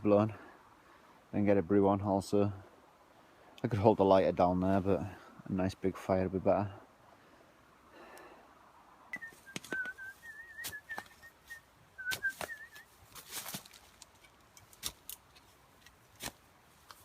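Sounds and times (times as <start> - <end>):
warbling whistled notes: 9.1 - 12.8
digging knocks and scrapes: 12.1 - 17.0.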